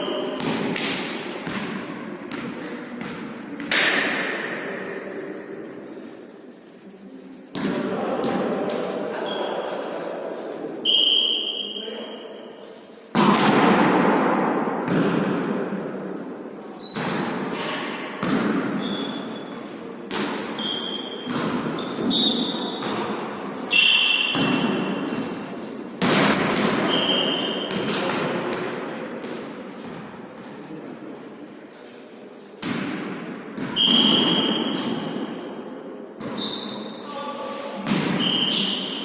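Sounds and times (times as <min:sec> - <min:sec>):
volleyball hits echoing: 0:00.1 - 0:05.9, 0:07.5 - 0:09.0, 0:13.1 - 0:16.2, 0:16.8 - 0:19.2, 0:20.1 - 0:30.2, 0:32.6 - 0:36.5, 0:37.8 - 0:39.0
short high squeaks: 0:36.4 - 0:37.1.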